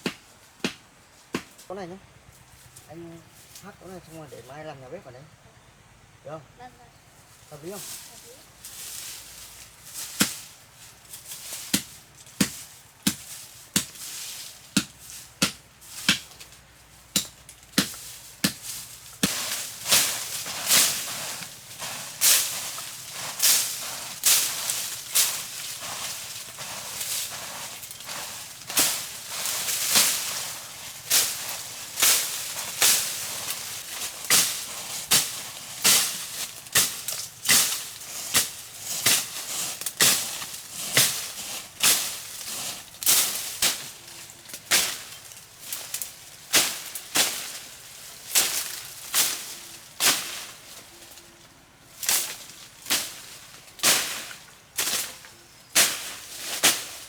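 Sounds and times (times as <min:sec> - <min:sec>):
blade chopping bamboo: 0:00.0 - 0:01.6, 0:10.1 - 0:10.5, 0:11.6 - 0:45.2.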